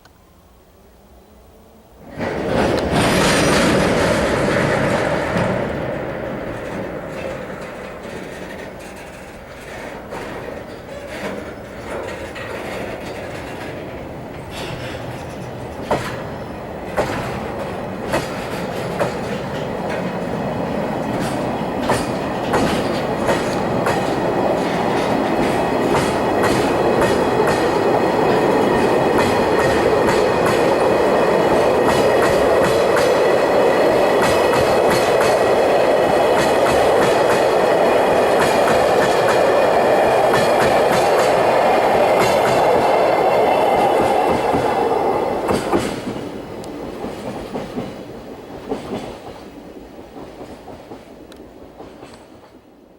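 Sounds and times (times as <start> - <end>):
train rumble: 1.6 - 52.9
train wheels clattering over joints: 2.1 - 52.6.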